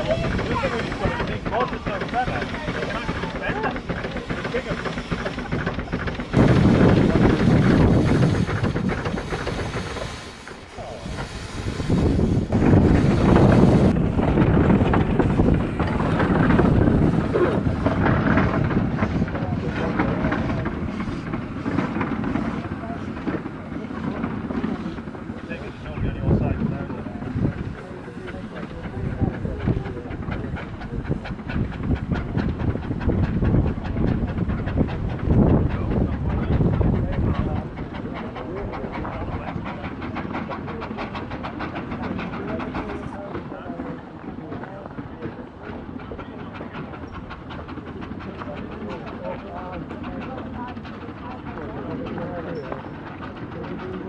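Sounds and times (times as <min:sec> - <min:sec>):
steam hissing: 0:00.0 - 0:54.0
steam locomotive chugging: 0:00.0 - 0:54.0.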